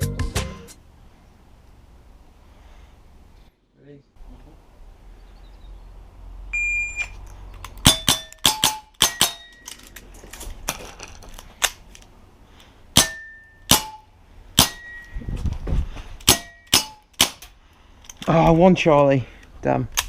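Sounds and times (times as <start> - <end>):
electronic beep: 6.6 - 7.2
air revolver shots popping: 7.8 - 9.5, 13.0 - 14.0, 14.6 - 14.9
steel target ringing: 7.8 - 9.6, 13.0 - 15.2.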